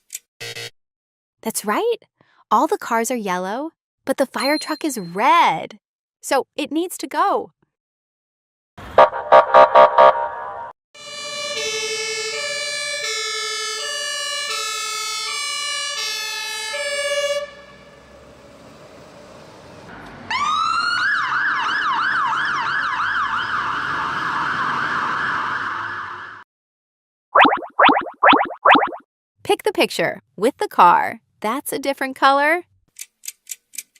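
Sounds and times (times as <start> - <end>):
two-tone siren wail: 9.0 - 18.2, 20.3 - 26.4
siren warbling yelp: 27.4 - 29.0.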